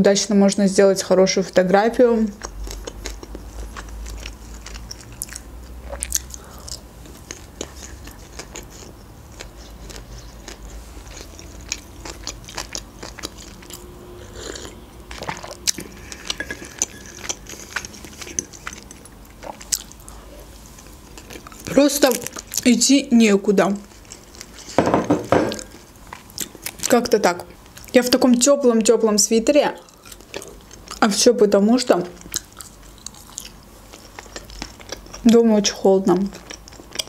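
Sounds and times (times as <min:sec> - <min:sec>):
person chewing food: 0:02.4 - 0:22.7, 0:23.8 - 0:26.9, 0:29.8 - 0:31.0, 0:32.1 - 0:35.4, 0:36.1 - 0:37.0.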